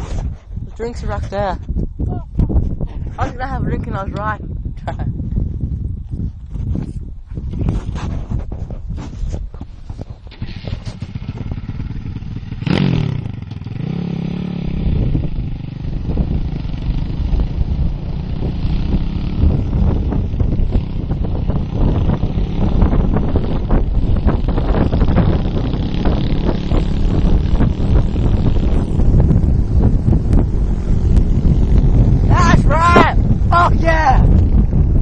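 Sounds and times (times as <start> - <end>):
motorcycle engine revving: 10.2 - 33.5.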